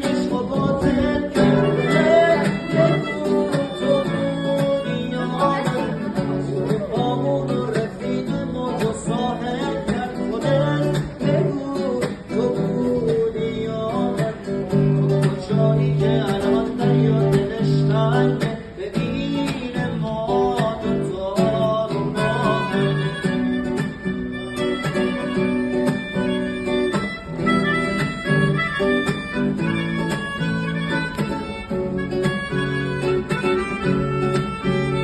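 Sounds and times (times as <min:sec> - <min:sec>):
acoustic guitar playing: 0:00.0 - 0:35.0.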